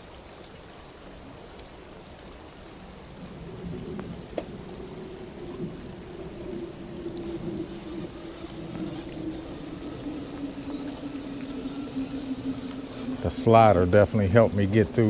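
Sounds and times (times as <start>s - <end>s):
running water: 0.0s - 15.0s
electric motor whine: 3.9s - 15.0s.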